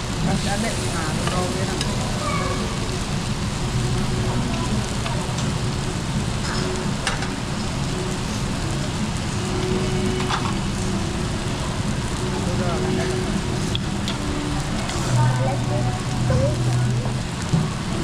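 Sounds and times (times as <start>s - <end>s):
food sizzling on a grill: 0.0s - 18.0s.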